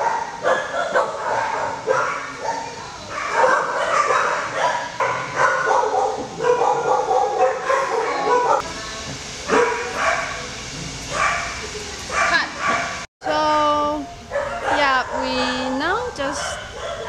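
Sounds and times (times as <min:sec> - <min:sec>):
dogs barking and whining: 0:00.0 - 0:08.7, 0:09.4 - 0:10.5, 0:11.1 - 0:13.1, 0:14.2 - 0:17.0.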